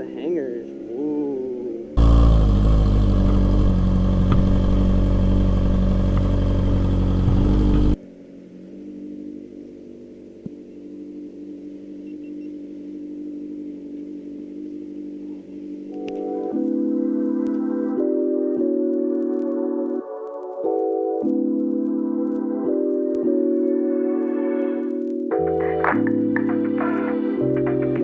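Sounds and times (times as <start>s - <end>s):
biplane radial engine running: 1.4s - 15.9s.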